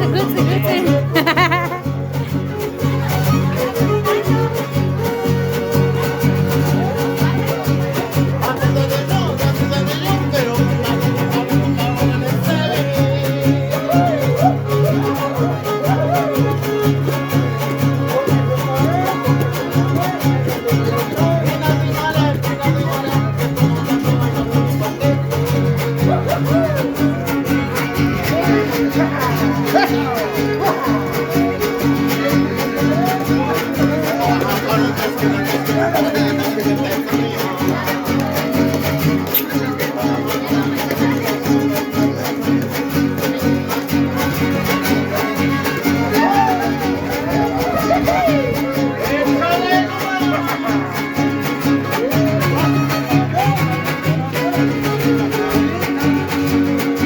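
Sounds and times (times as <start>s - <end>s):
violin melody: 0.0s - 7.2s
strummed guitars: 0.0s - 57.0s.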